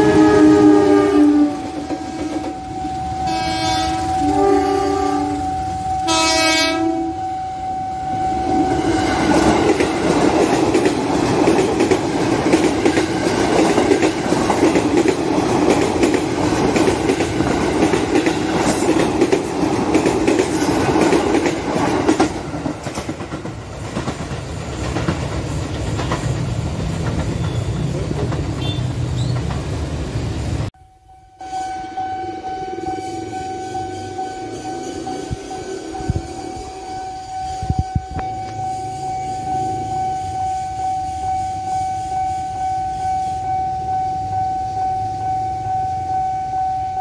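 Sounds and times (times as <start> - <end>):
train wheels running over rails: 8.6 - 30.7.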